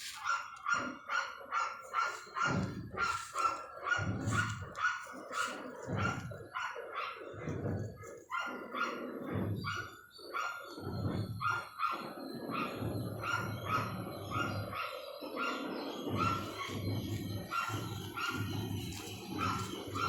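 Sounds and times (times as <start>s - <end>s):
dog barking: 0.0s - 20.0s.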